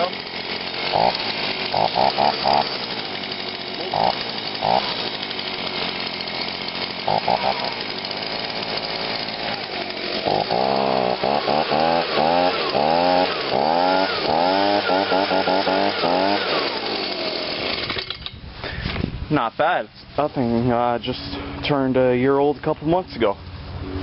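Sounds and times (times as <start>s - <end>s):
leaf blower revving: 0.0s - 19.0s.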